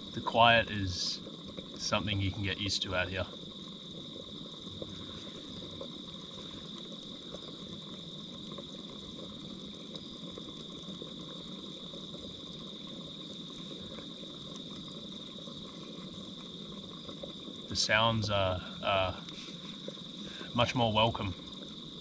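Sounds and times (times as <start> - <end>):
high insect chorus: 0.0 - 22.0
low background hiss: 0.0 - 22.0.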